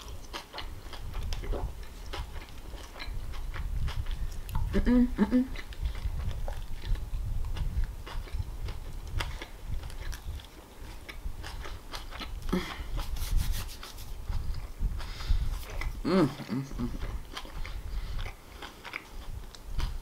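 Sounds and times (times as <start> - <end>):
chewing and mouth clicks: 0.0 - 20.0
lettuce leaves rustling: 8.0 - 20.0.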